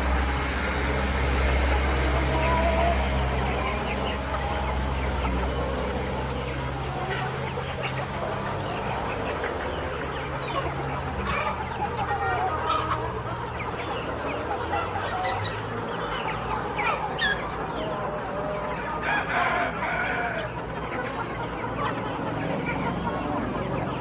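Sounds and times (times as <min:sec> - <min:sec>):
chickens clucking: 0:00.0 - 0:24.0
rooster crowing: 0:19.0 - 0:20.5.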